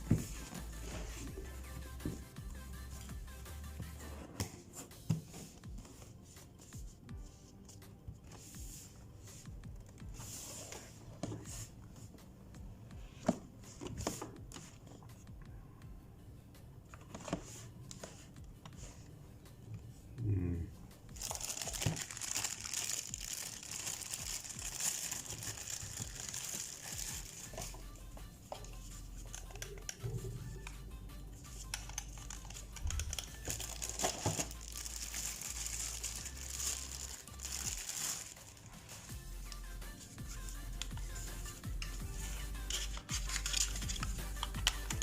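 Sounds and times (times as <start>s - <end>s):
packaging crinkling: 21.2s - 27.8s, 31.7s - 39.1s, 42.7s - 45.0s.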